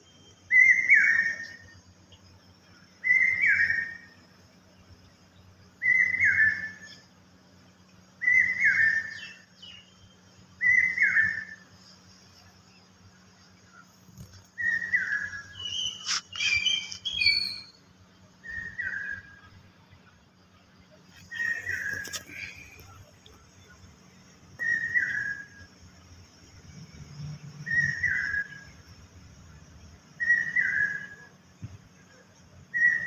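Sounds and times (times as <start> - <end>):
bird whistling call: 0.4 - 1.7, 3.0 - 4.2, 5.8 - 7.0, 8.2 - 10.0, 10.6 - 11.6, 14.6 - 17.8, 18.4 - 19.5, 21.3 - 22.6, 24.6 - 25.7, 27.6 - 28.7, 30.2 - 31.3, 32.7 - 33.0
high bird chirps: 14.6 - 17.8.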